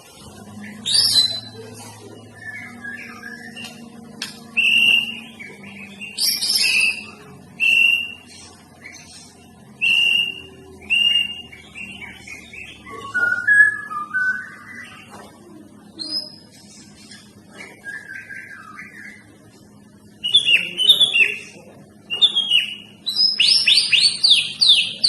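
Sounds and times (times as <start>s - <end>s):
bird singing whistled notes: 2.4s - 4.0s, 4.6s - 8.3s, 9.8s - 15.1s, 17.7s - 19.3s, 20.2s - 21.4s, 22.1s - 25.0s.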